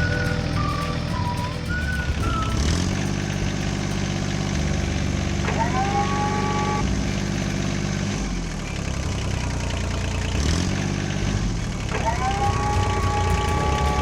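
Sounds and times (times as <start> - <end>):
higher whine: 0.0 - 9.0
tractor engine running: 0.0 - 14.0.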